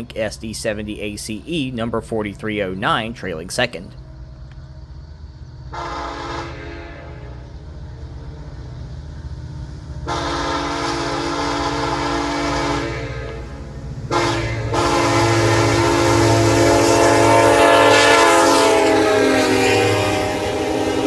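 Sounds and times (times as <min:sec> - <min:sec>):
diesel engines rumbling: 0:00.0 - 0:21.0
locomotive air horn blasts: 0:05.7 - 0:07.4, 0:10.1 - 0:13.5, 0:14.1 - 0:21.0.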